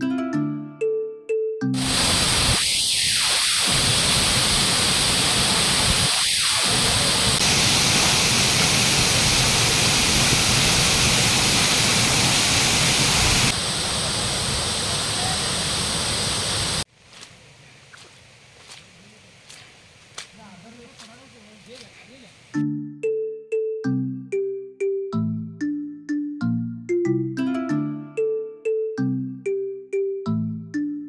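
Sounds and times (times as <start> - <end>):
waterfall rushing: 1.8 - 16.8.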